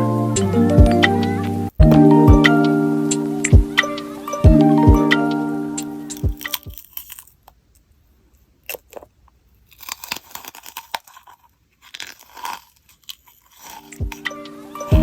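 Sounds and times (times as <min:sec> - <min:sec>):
candy crunching being chewed: 0:05.8 - 0:15.0.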